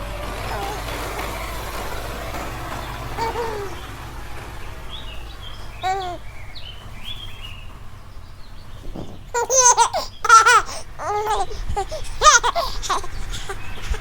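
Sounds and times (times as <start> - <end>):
baby laughing: 0.0 - 4.0, 4.8 - 6.3, 8.9 - 14.0
faint bird chirps: 0.5 - 14.0.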